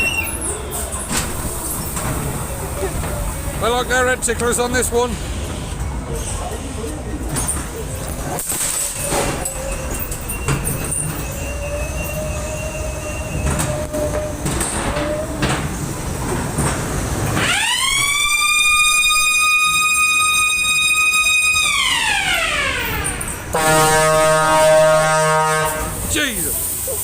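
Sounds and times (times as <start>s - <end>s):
ride car rumbling along track: 0.0s - 27.0s
piercing siren-like sound effect: 17.4s - 23.2s.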